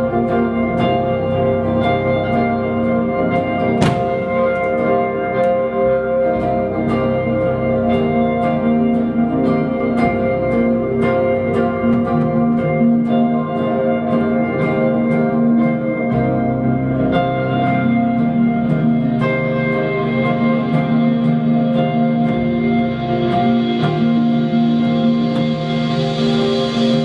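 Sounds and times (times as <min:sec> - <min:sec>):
live band playing: 0:01.7 - 0:06.9.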